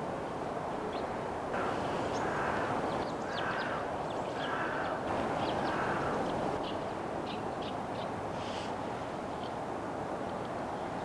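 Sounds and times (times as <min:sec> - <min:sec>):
bird calling: 0:00.9 - 0:08.7.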